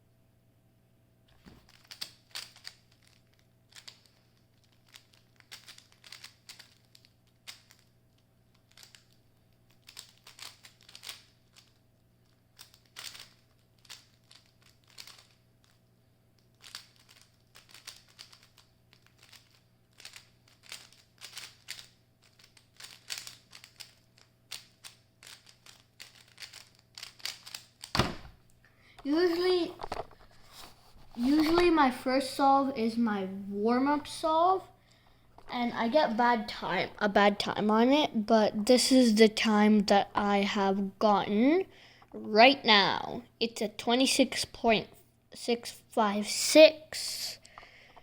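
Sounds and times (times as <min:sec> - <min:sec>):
puzzle cube plastic clicks: 0:01.7 - 0:15.8, 0:16.4 - 0:28.0.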